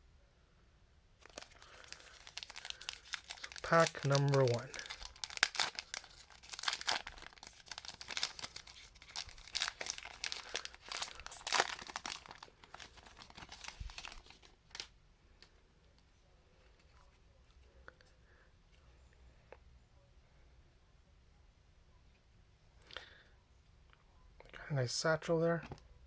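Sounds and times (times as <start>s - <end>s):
card pack wrapper tearing and crinkling: 1.2s - 14.9s.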